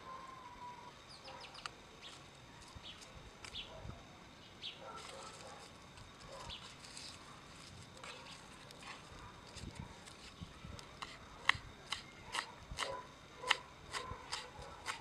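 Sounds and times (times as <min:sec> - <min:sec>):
faint bird chirps: 0:00.0 - 0:04.8.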